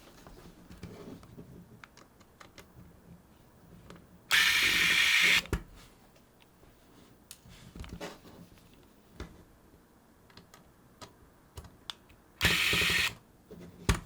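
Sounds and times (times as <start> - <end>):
electric screwdriver motor: 4.3 - 5.4, 12.4 - 13.2.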